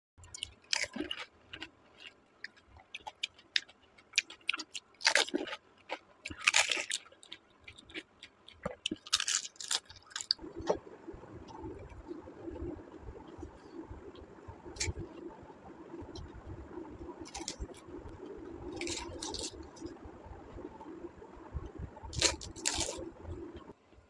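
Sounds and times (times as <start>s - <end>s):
crunchy shells being chewed: 0.2s - 10.8s, 14.8s - 15.1s, 17.2s - 17.8s, 18.4s - 19.9s, 22.1s - 23.0s
low background rumble: 8.7s - 24.0s.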